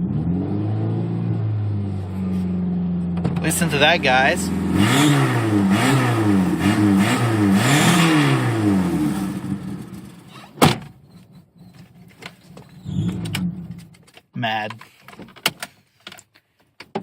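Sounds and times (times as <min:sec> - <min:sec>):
car engine revving: 0:00.0 - 0:10.4.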